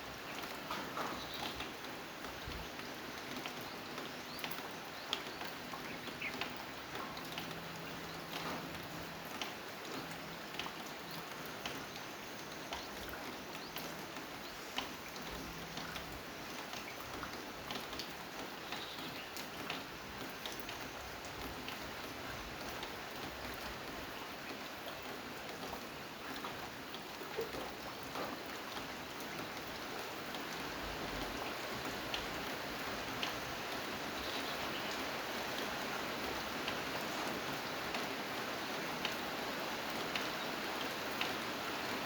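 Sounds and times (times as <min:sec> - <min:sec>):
steady rain: 0:00.0 - 0:42.0.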